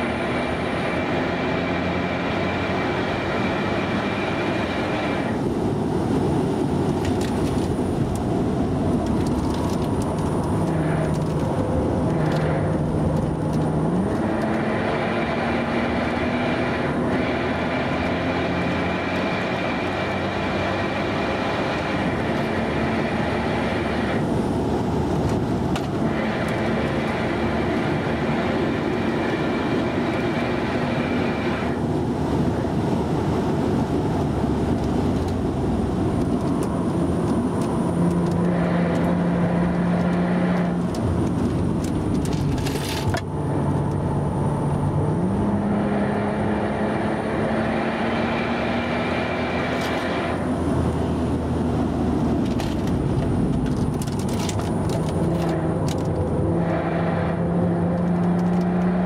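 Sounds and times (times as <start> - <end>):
car engine under hard driving: 0.0 - 59.0
road noise: 0.0 - 59.0
wind noise: 2.4 - 17.3.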